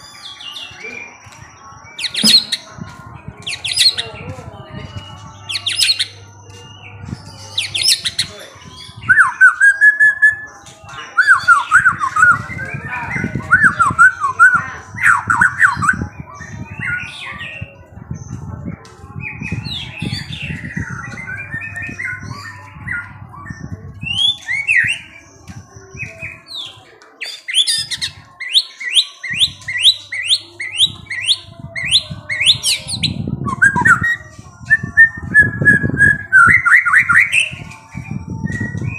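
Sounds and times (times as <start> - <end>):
songbird chirping and whistling: 0.0 - 38.9.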